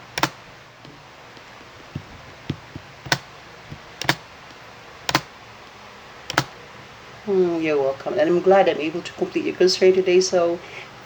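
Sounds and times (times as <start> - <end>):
computer keyboard keystrokes: 0.0 - 0.4, 1.4 - 4.2, 5.1 - 5.3, 6.3 - 6.5.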